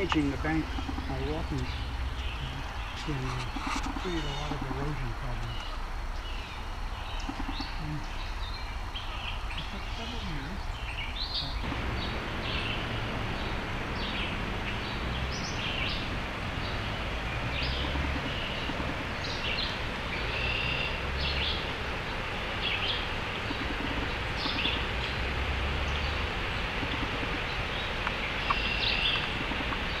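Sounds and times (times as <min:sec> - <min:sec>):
songbirds chirping: 0:00.0 - 0:30.0
river rushing: 0:11.6 - 0:30.0.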